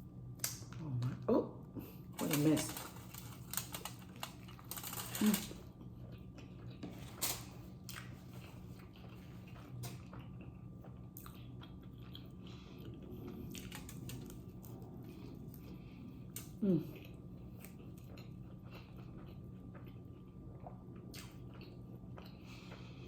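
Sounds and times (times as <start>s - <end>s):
chewing and wet mouth noises: 0.4s - 23.0s
small clicks and rustles: 2.2s - 5.6s
person humming: 16.6s - 17.0s.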